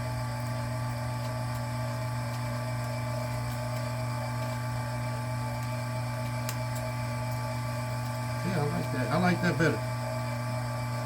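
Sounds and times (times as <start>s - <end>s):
machine motor humming: 0.0s - 11.0s.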